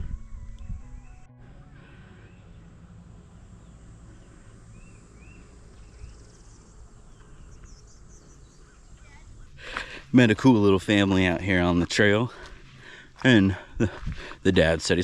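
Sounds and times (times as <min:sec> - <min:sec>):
low steady rumble: 0:00.0 - 0:14.4
bird chirping: 0:02.2 - 0:09.8.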